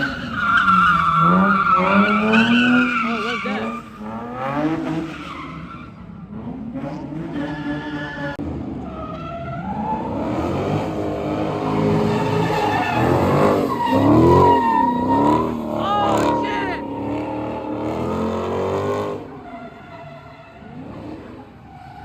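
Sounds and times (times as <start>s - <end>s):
tyres skidding: 0.0s - 22.0s
car engine revving: 9.7s - 22.0s.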